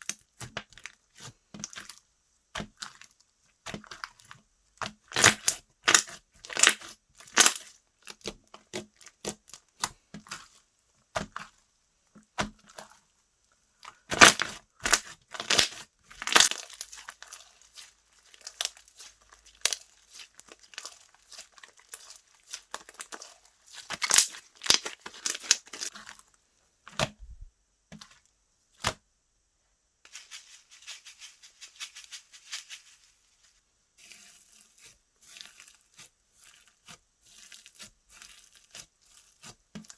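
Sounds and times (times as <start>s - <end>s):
slime crackling and popping: 4.9s - 10.5s, 14.1s - 26.2s.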